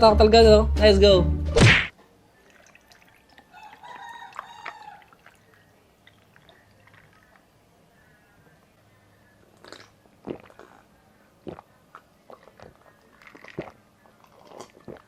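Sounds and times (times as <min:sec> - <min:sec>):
biting and chewing: 0:09.5 - 0:15.0.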